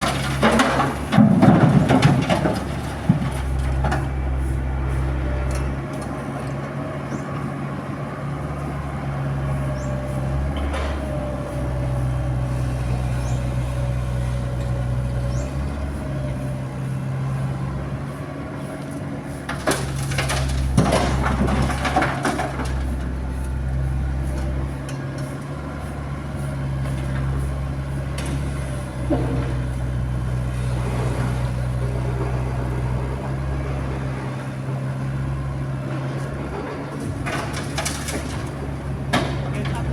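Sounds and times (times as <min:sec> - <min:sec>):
rubble crashing into truck bed: 0:00.0 - 0:03.4, 0:19.6 - 0:22.8, 0:37.0 - 0:39.9
diesel engines running: 0:00.0 - 0:39.9.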